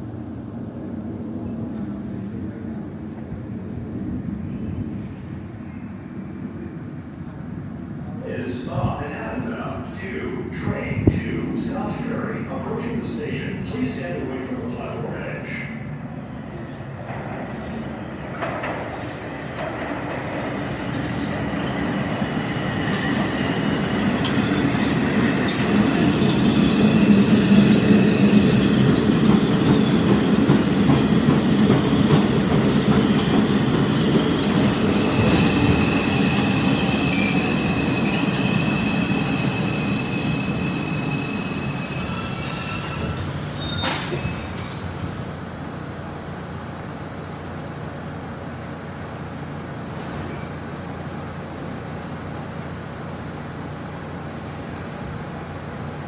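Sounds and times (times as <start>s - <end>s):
subway train rumble: 0.0s - 56.0s
wheel squeals: 19.8s - 45.4s.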